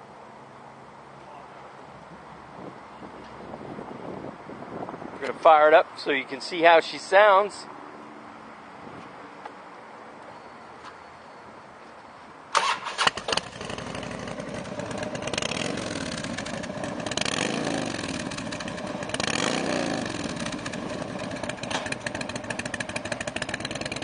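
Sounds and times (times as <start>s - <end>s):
motorcycle engine starting: 12.5s - 24.0s
motorcycle engine idling and revving: 12.6s - 24.0s.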